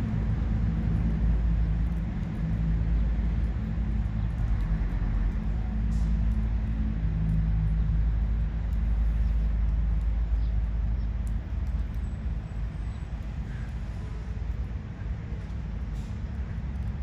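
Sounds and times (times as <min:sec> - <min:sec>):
faint clicks: 0:09.6 - 0:12.1.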